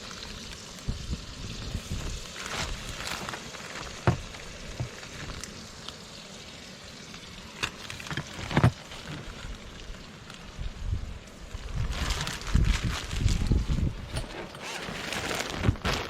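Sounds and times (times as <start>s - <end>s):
fish sizzling in a pan: 0.0s - 12.6s.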